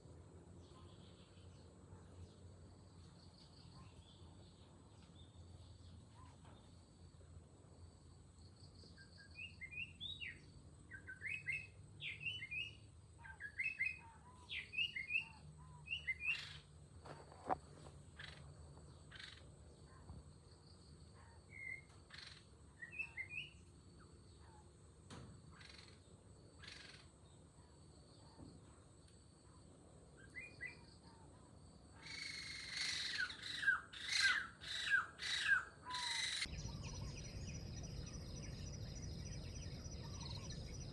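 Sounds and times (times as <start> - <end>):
small birds chirping: 32.8 - 40.9
high insect drone: 36.5 - 40.9.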